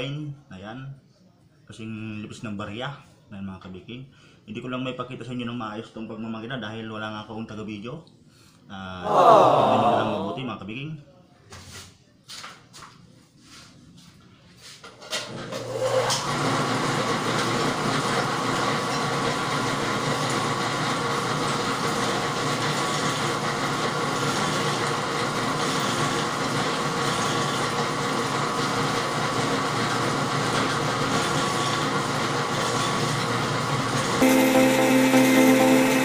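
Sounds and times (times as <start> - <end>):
dough roller machine running: 15.2 - 36.0.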